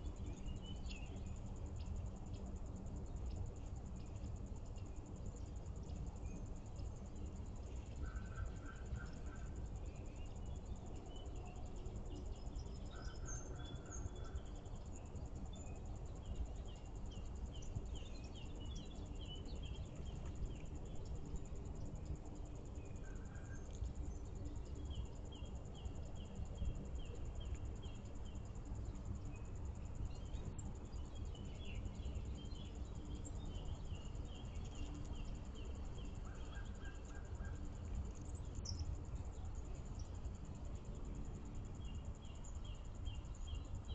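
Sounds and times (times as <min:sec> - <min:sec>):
songbirds calling: 0:07.9 - 0:40.1.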